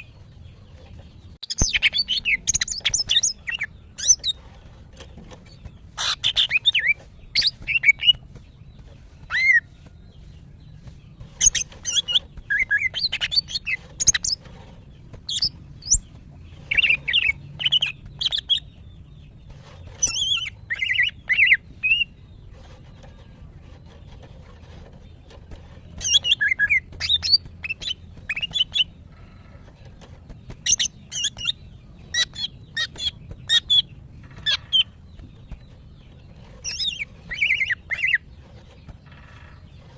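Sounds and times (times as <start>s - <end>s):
bird chirping and whistling: 1.4s - 4.4s, 11.4s - 14.4s, 20.0s - 22.2s, 26.0s - 28.9s, 36.6s - 38.3s.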